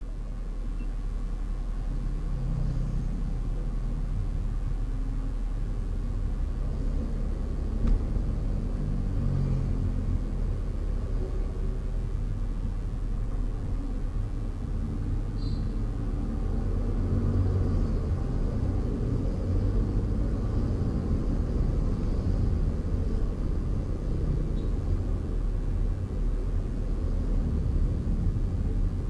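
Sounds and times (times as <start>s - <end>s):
car driving on road: 0.0s - 29.0s.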